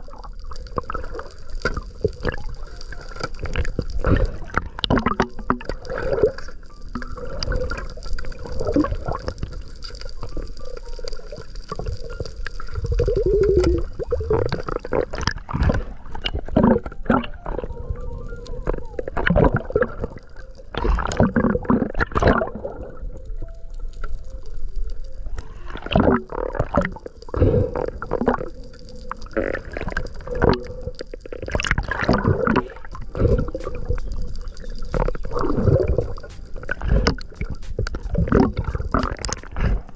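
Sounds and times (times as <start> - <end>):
underwater gurgling and bubbling: 0.0 - 39.9
irregular pops and knocks: 32.5 - 39.9.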